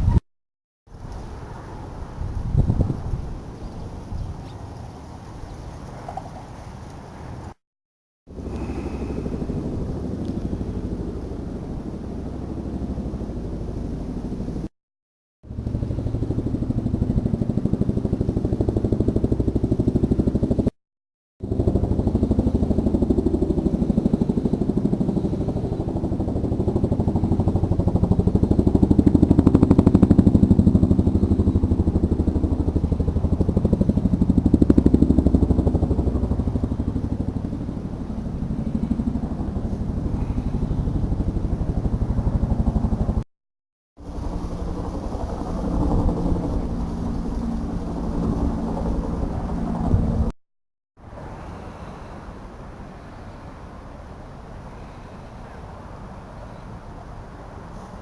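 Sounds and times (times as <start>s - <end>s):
engine pulsing: 8.3s - 14.7s, 15.5s - 20.7s, 21.4s - 43.2s.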